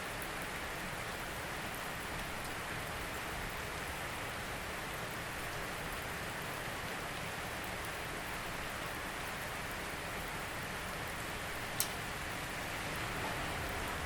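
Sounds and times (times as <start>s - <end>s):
steady rain hiss: 0.0s - 14.0s
faint raindrop ticks: 2.0s - 3.0s, 11.6s - 12.4s.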